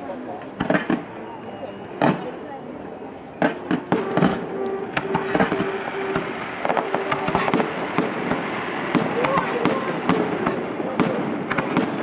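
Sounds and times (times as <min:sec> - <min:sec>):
fireworks bangs and crackles: 0:00.0 - 0:12.0
steady held tone: 0:02.8 - 0:12.0.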